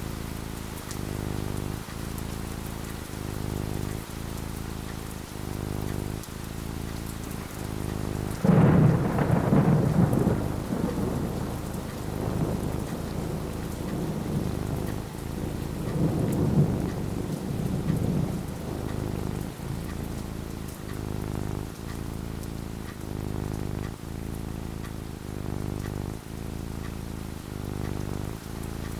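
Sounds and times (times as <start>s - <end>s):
steady rain falling: 0.0s - 28.9s
thunder rumbling: 7.3s - 24.2s, 24.8s - 28.9s.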